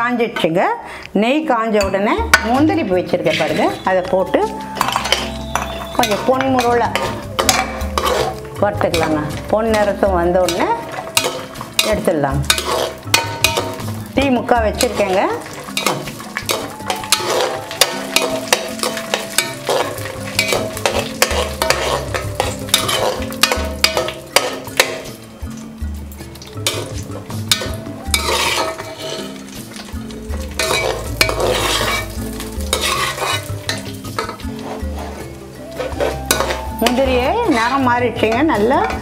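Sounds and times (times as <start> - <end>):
nuts sizzling in ghee: 1.6 - 39.0
ladle scraping and clicking on pan: 4.8 - 9.9, 10.5 - 14.0, 14.8 - 25.2, 26.4 - 37.8.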